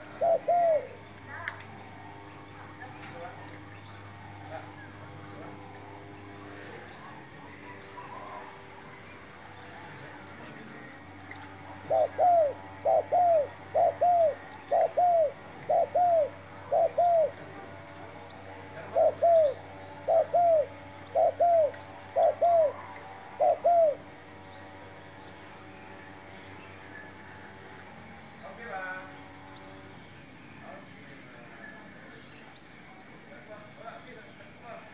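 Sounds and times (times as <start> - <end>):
dove cooing: 0.0 - 1.0, 11.7 - 24.1
high-pitched insect-like hiss: 0.0 - 34.9.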